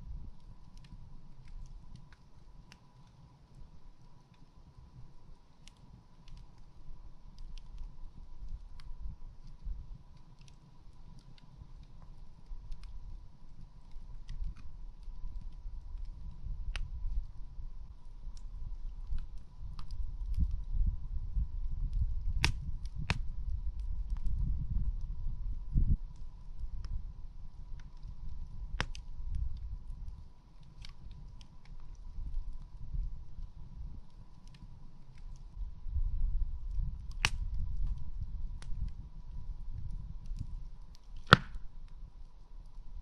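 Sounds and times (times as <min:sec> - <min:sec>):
low steady rumble: 0:00.0 - 0:43.0
campfire pops and snaps: 0:00.4 - 0:04.5, 0:05.4 - 0:06.7, 0:07.3 - 0:17.4, 0:18.0 - 0:20.8, 0:21.8 - 0:25.1, 0:25.7 - 0:27.0, 0:27.6 - 0:35.6, 0:36.7 - 0:42.8.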